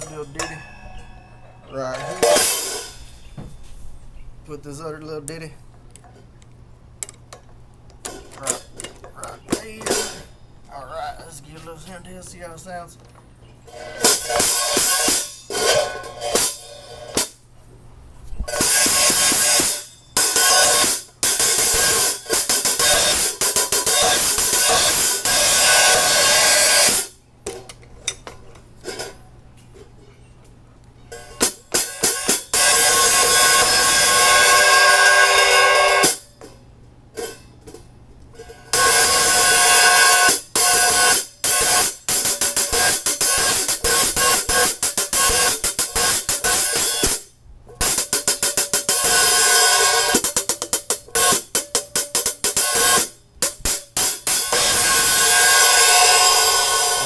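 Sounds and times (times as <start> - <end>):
hi-hat cymbals struck: 2.0 - 3.7, 9.4 - 10.4, 13.7 - 17.4, 18.5 - 27.2, 31.1 - 36.4, 38.7 - 57.0.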